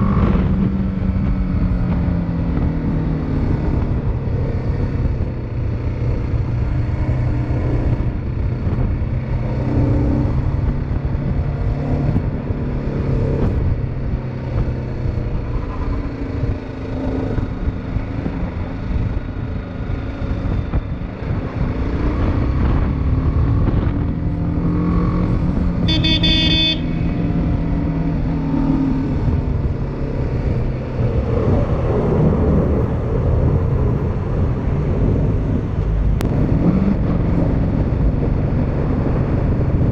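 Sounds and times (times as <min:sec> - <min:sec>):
motorcycle engine revving: 0:00.0 - 0:39.9
wind noise: 0:00.0 - 0:39.9
vehicle horn: 0:25.8 - 0:27.3.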